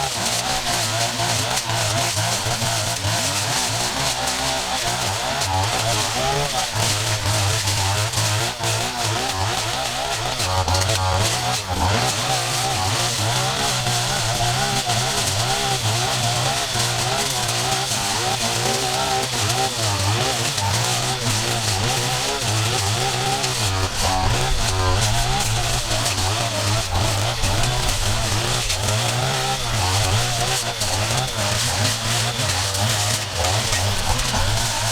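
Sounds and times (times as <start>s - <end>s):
small petrol engines running: 0.0s - 34.9s.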